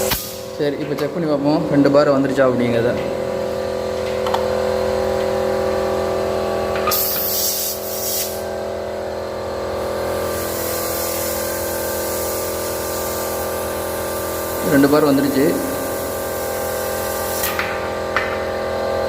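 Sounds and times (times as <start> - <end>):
air hissing from valve: 0.0 - 0.5, 6.8 - 8.4, 9.8 - 17.6
machine hum: 0.0 - 19.0.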